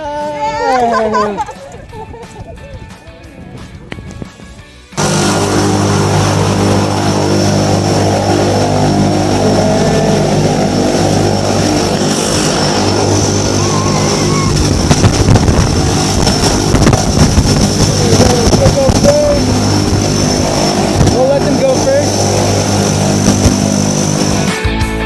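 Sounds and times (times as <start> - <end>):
propeller engine droning: 5.0 - 24.8.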